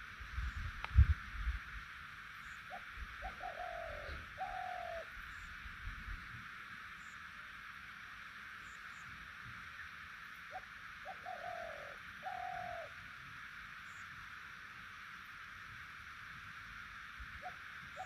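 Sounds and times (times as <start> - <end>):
steady background hiss: 0.0 - 18.0
bird calling: 2.4 - 5.6, 10.5 - 13.0, 17.4 - 18.0.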